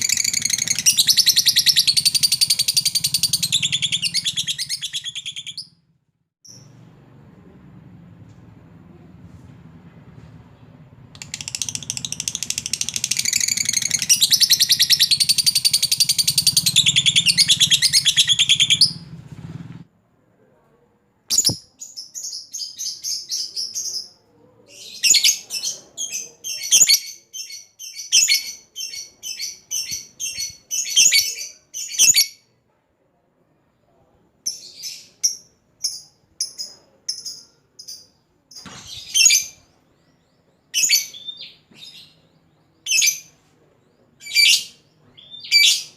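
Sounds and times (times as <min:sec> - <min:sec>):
bird chirps: 0:00.0 - 0:05.8, 0:10.6 - 0:19.1, 0:21.3 - 0:32.4.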